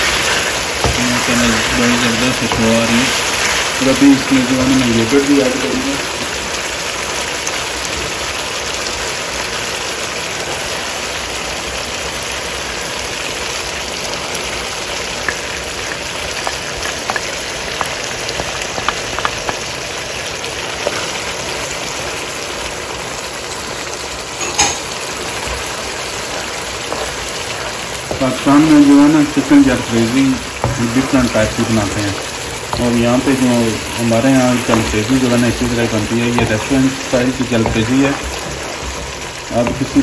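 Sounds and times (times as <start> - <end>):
wooden spatula scraping: 0.0 - 4.8, 25.0 - 40.0
food sizzling in a wok: 0.0 - 40.0.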